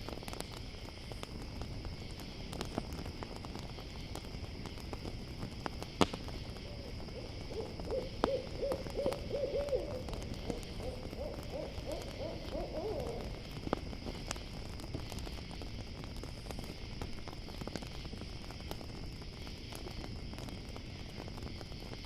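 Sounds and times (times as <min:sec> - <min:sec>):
campfire crackling: 0:00.0 - 0:22.0
crickets chirping: 0:00.0 - 0:22.0
fire pop: 0:00.0 - 0:22.0
owl hooting: 0:06.6 - 0:13.4.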